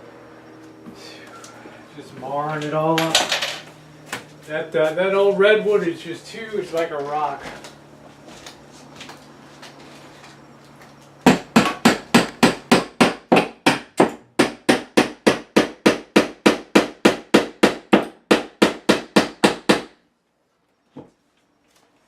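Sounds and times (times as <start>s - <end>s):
hammer driving a nail into wood: 11.2s - 20.0s.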